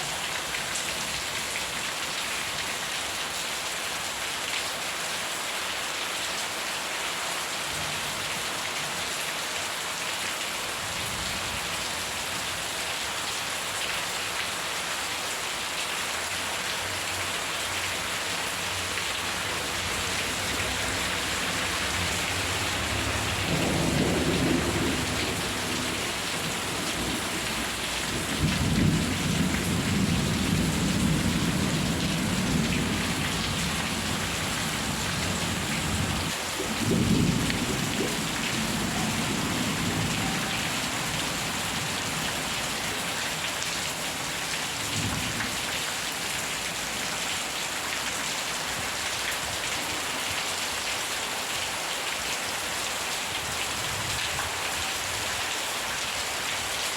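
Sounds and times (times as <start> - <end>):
heavy rain: 0.0 - 56.9
thunder rumbling: 21.3 - 40.6.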